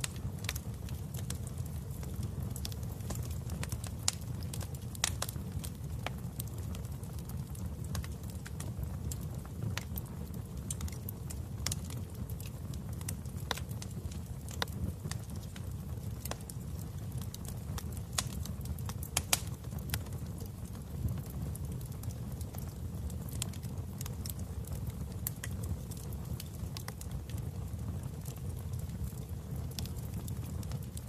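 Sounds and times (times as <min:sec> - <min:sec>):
flames roaring: 0:00.0 - 0:31.0
wood fire crackling: 0:00.0 - 0:31.0.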